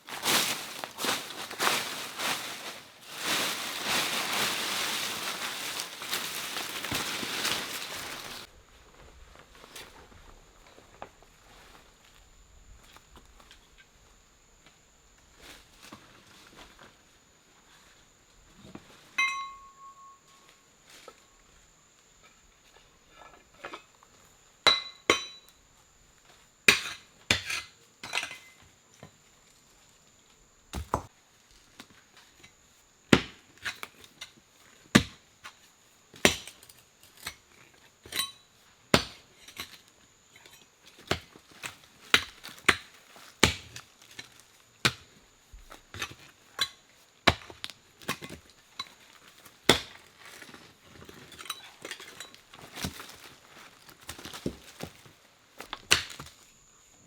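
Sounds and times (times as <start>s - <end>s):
wood being chopped: 30.7s - 31.1s, 55.6s - 56.3s.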